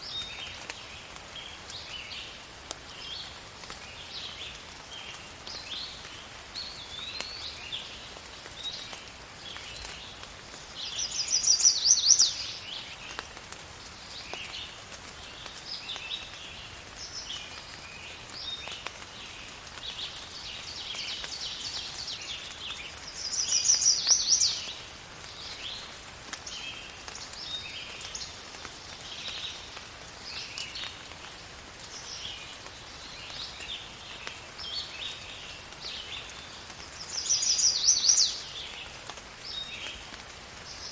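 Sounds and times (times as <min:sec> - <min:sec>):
faint steady hiss: 0:00.0 - 0:40.9
birds chirping: 0:06.6 - 0:13.3, 0:14.2 - 0:31.1, 0:31.9 - 0:40.0.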